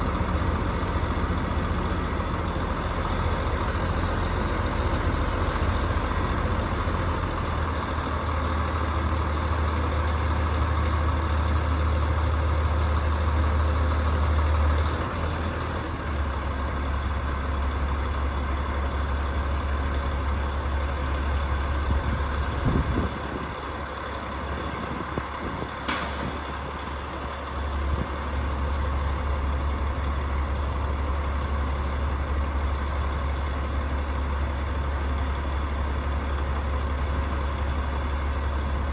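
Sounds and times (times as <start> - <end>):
short sharp hiss: 25.9 - 26.4.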